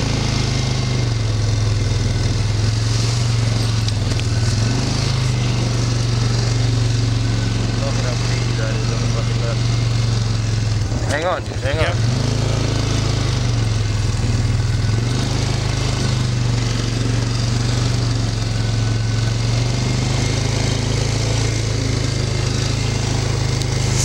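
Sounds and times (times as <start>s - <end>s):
small engine running: 0.0s - 24.0s.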